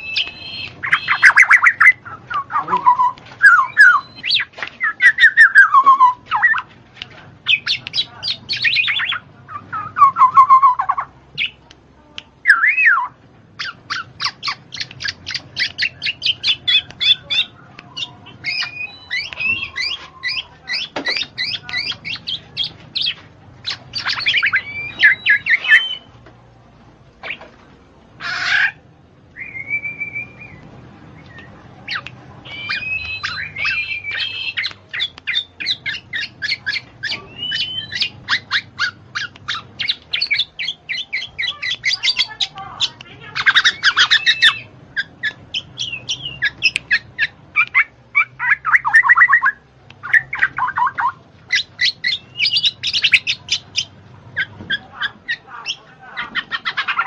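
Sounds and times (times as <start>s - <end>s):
birds chirping and squawking: 0.0s - 11.6s, 12.4s - 26.2s, 27.2s - 27.6s, 28.2s - 57.0s.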